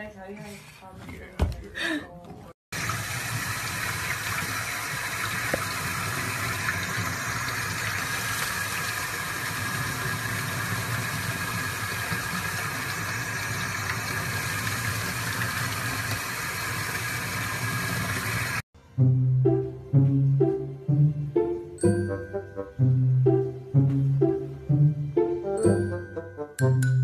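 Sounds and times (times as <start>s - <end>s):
tap water splashing in sink: 2.8s - 18.6s.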